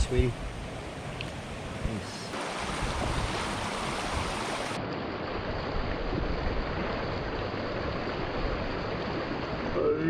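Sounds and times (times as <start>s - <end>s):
wind rumble on microphone: 0.0s - 9.9s
creek water flowing: 0.0s - 10.0s.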